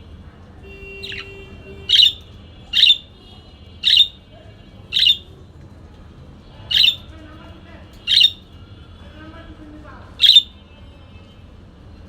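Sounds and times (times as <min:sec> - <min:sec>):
parakeet giving sharp calls: 0:01.0 - 0:03.2, 0:03.8 - 0:04.2, 0:04.9 - 0:05.3, 0:06.7 - 0:07.1, 0:08.0 - 0:08.5, 0:10.2 - 0:10.6.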